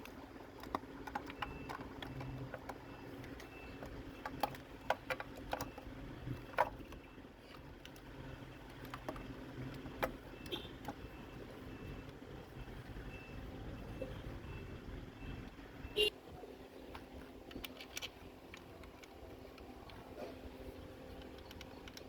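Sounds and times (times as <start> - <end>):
low steady hum: 0.0 - 22.0
clicks and knocks of tools: 16.9 - 22.0.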